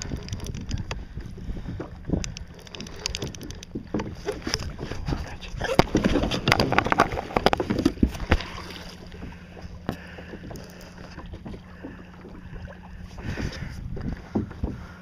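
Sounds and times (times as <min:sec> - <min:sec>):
wind noise on microphone: 0:00.0 - 0:08.4, 0:13.1 - 0:15.0
water splashing: 0:02.4 - 0:10.2.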